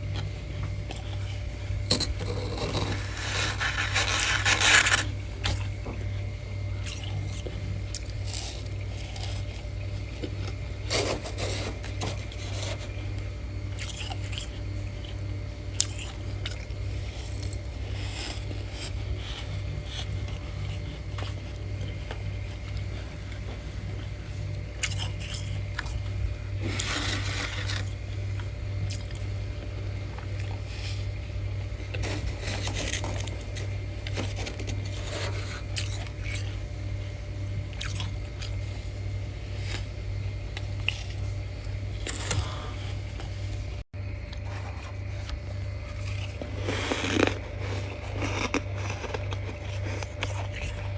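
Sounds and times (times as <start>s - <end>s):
steady low hum: 0.0s - 50.9s
frost being scraped and bitten: 2.0s - 5.8s, 24.7s - 29.2s, 30.3s - 36.6s, 44.4s - 50.9s.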